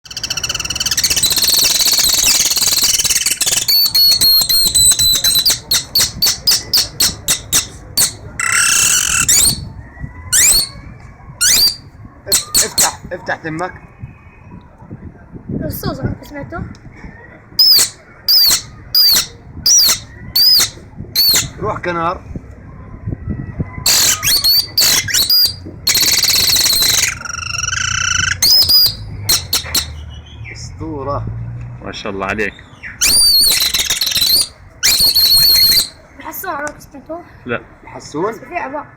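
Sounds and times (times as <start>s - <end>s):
boy whistling bird calls: 0.1s - 9.7s, 10.3s - 13.0s, 17.6s - 21.5s, 23.9s - 30.0s, 33.0s - 36.0s.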